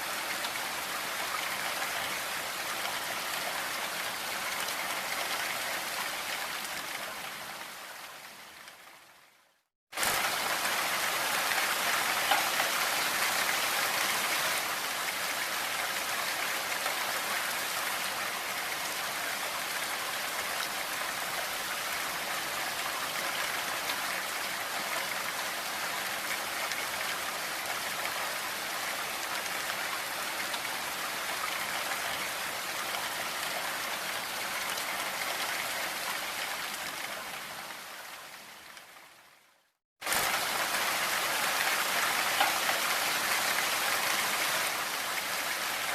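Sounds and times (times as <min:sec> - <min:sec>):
rain hiss: 0:10.0 - 0:39.4, 0:40.0 - 0:45.9.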